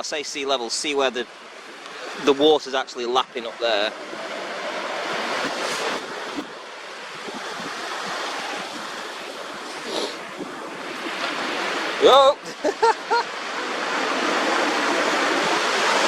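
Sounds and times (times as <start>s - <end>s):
sea waves lapping on shore: 0.0s - 16.0s
wind rumble on microphone: 4.1s - 12.1s, 13.1s - 16.0s.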